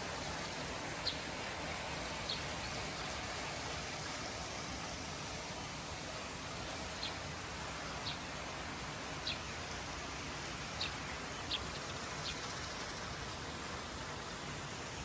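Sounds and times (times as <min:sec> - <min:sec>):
outdoor background hiss: 0:00.0 - 0:15.0
bird chirping: 0:10.8 - 0:13.0.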